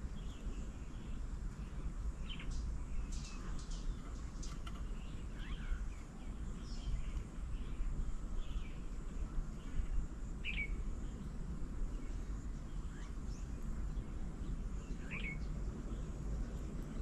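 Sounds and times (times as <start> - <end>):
low outdoor rumble: 0.0 - 17.0
sharp bird calls: 0.1 - 8.8, 9.6 - 11.3, 14.5 - 16.1.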